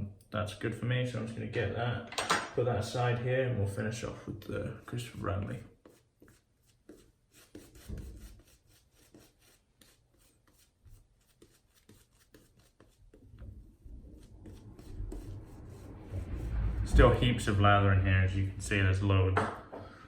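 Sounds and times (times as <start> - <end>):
soft rubbing: 4.4 - 18.4.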